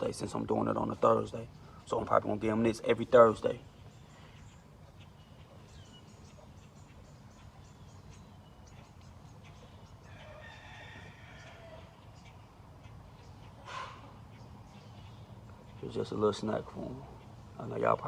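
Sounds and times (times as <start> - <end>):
faint rooster crowing: 9.9 - 12.3.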